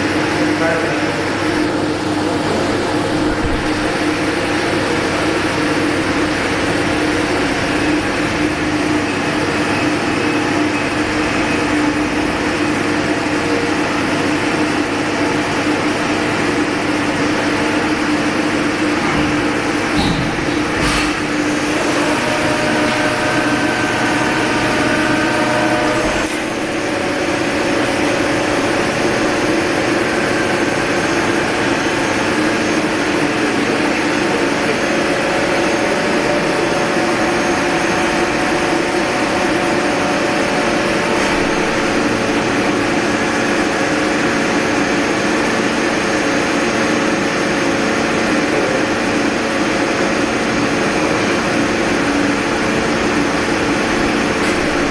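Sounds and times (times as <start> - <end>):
lathe running with held tones: 0.0 - 54.9.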